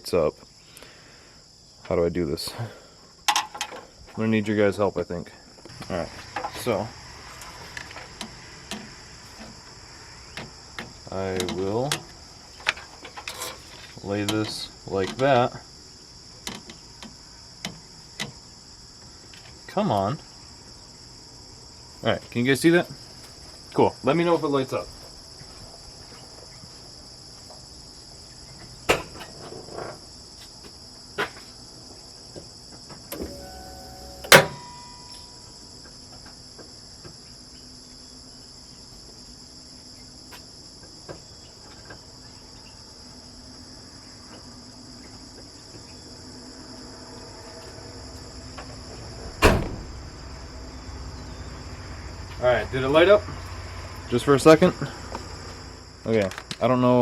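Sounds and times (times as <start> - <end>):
crickets chirring: 0.0 - 57.0
sharp knocks and clunks: 28.9 - 29.9.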